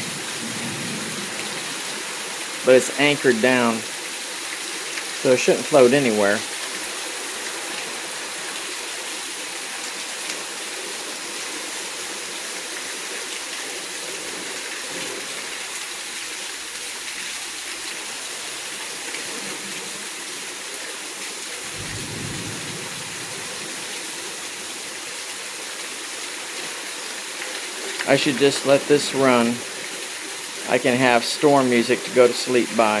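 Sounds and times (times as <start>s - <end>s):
low thunder rumble: 0.0s - 1.8s, 21.6s - 24.2s
steady rain hiss: 0.0s - 33.0s.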